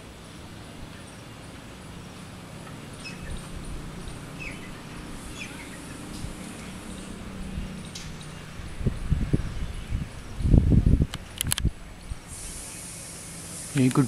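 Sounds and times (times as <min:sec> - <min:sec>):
steady low hum: 0:00.0 - 0:14.0
faint bird chirps: 0:00.3 - 0:10.6.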